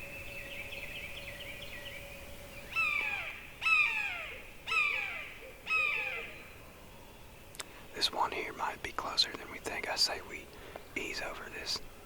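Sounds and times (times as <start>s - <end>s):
crow cawing: 2.7s - 6.4s
small bird warbling: 2.7s - 6.4s.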